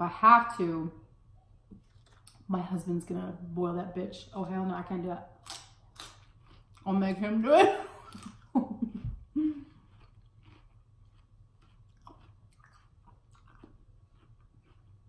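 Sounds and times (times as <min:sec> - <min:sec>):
chewing and mouth clicks: 0:05.4 - 0:06.9, 0:09.6 - 0:15.0.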